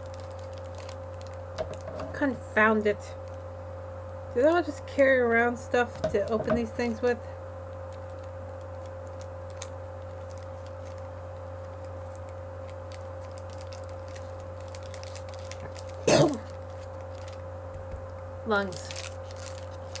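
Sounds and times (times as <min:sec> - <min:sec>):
steady low hum: 0:00.0 - 0:20.0
person's short vocal sound: 0:16.1 - 0:16.4.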